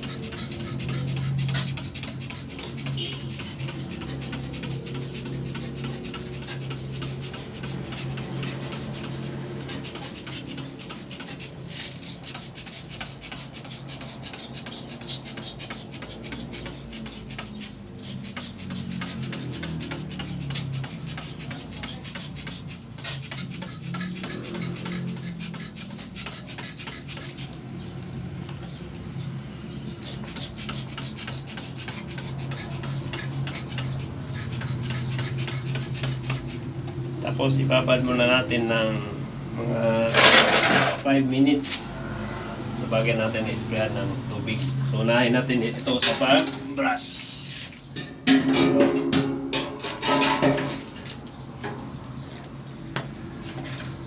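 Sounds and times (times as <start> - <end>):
stiff brush scrubbing: 0.0 - 27.6, 30.0 - 37.2.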